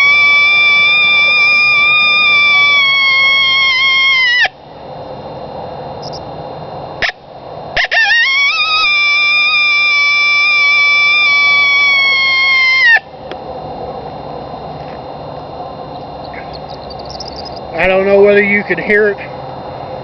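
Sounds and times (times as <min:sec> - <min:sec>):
horn howler howls: 0:00.0 - 0:04.5.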